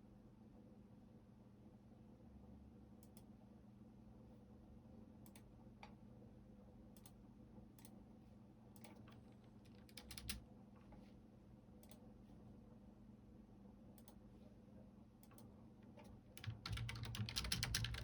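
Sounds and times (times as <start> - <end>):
computer keyboard typing: 9.7 - 10.4, 16.4 - 18.0.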